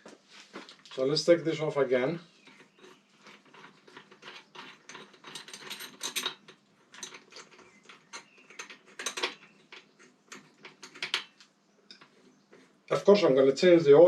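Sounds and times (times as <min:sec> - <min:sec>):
metal tools clinking: 0:02.4 - 0:12.1.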